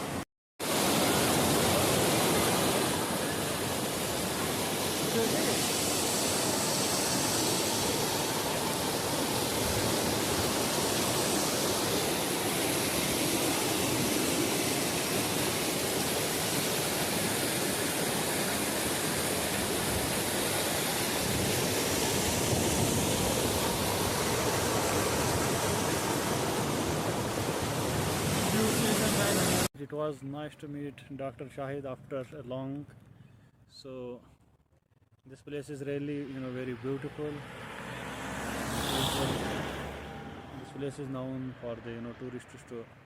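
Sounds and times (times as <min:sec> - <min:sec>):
stream water rushing: 0:00.0 - 0:29.7, 0:37.5 - 0:41.1.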